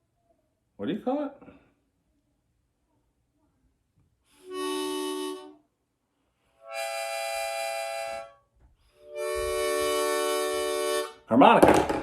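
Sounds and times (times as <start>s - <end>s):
harmonica chords: 4.3s - 5.7s, 6.4s - 11.3s.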